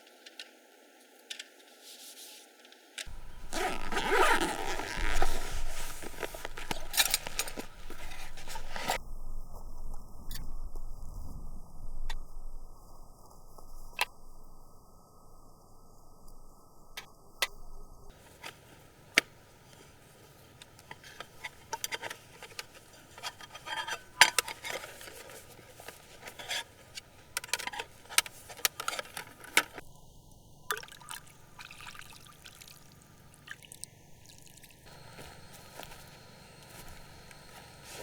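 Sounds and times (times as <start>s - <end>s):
liquid splashing and trickling: 30.7s - 34.8s.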